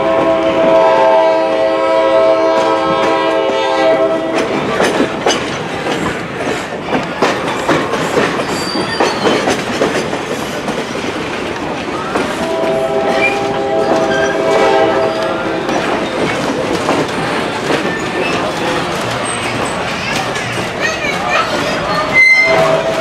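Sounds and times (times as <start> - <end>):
locomotive warning horn chord: 0.0 - 4.5, 12.4 - 15.6, 22.3 - 23.0
wheels clicking over rail joints: 2.5 - 23.0.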